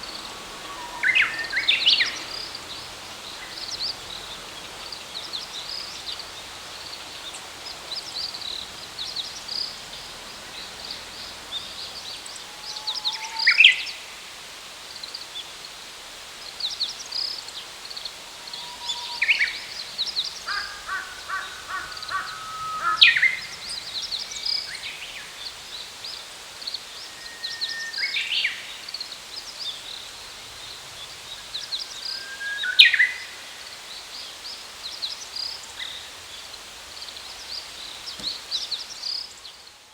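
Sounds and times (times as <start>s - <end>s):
sharp sweeping bird calls: 18.7s - 25.6s
birds chirping: 18.7s - 26.0s.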